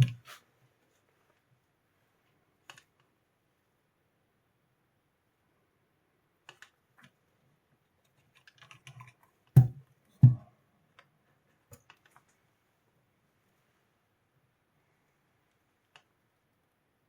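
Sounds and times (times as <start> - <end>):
objects clicking and tapping: 0.0 - 0.2
loud dull knocks: 9.6 - 10.5.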